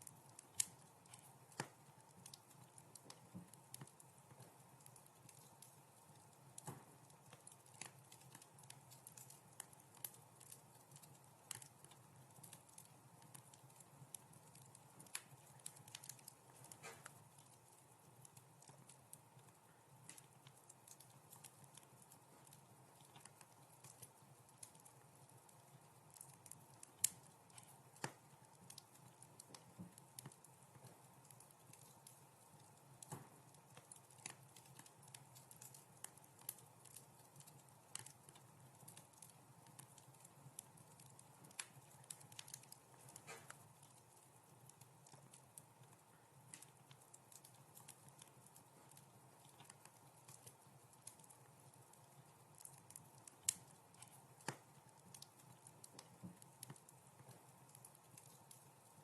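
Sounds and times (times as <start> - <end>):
faint steady hiss: 0.0 - 59.0
wood fire crackling: 0.0 - 59.0.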